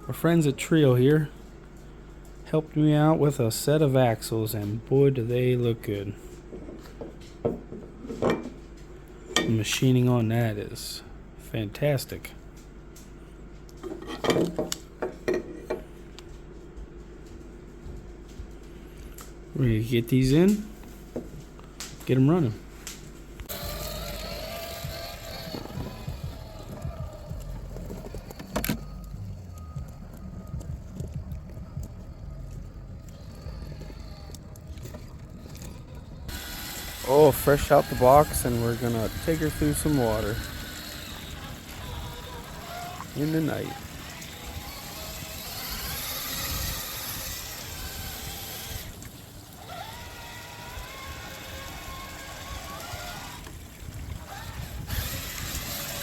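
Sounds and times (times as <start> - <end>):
electric motor whine: 23.4 - 56.0
drivetrain rumbling and knocks: 23.5 - 36.4
water splashing and trickling: 48.3 - 55.6.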